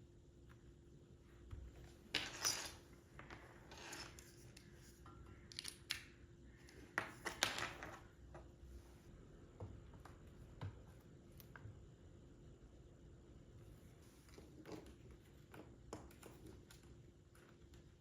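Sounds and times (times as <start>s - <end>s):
sharp clicks of small objects: 5.4s - 6.2s.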